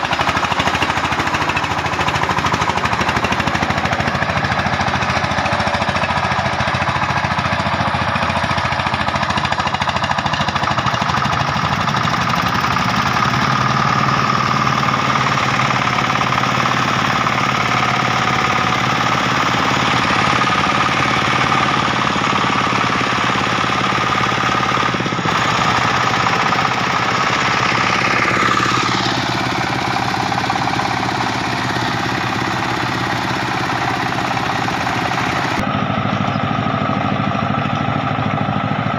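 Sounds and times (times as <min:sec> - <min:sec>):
diesel tractor engine chugging: 0:00.0 - 0:38.9.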